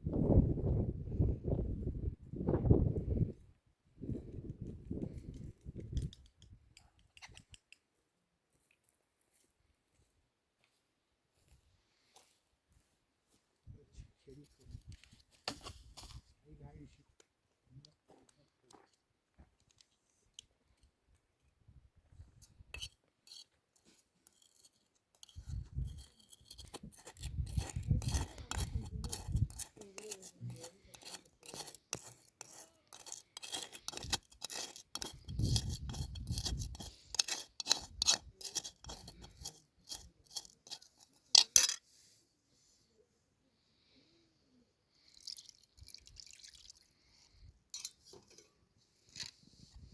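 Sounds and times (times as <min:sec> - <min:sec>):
quick scraping and clicking strokes: 0:22.4 - 0:41.8.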